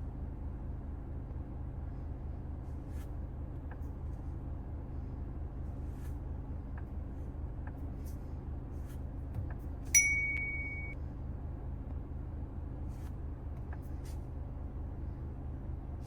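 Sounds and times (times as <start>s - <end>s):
engine and road noise drone: 0.0s - 16.0s
electronic alert chime: 10.0s - 11.0s.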